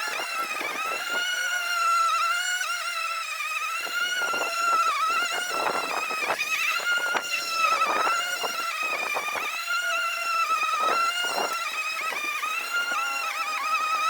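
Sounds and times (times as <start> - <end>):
grass being cut: 0.0 - 14.0
lawn mower whining: 3.7 - 14.0.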